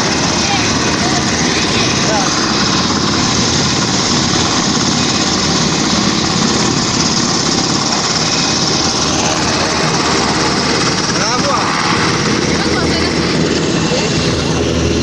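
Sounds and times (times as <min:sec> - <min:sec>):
helicopter rotor and engine drone: 0:00.0 - 0:15.0.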